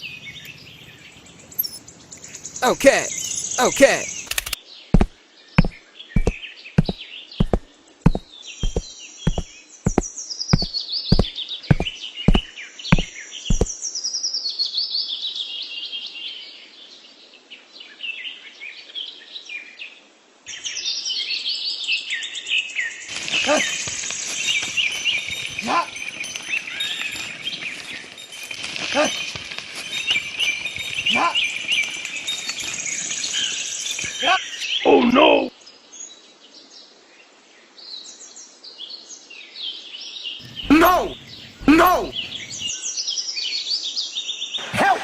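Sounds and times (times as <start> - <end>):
birds chirping: 0.0 - 13.8, 23.0 - 35.5, 40.4 - 42.8
sharp knocks: 5.0 - 12.4, 13.0 - 13.7.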